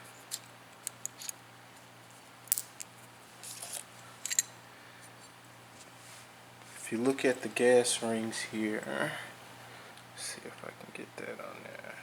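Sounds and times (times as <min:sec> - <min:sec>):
metal gun parts clicking: 0:00.3 - 0:01.4, 0:03.6 - 0:04.5.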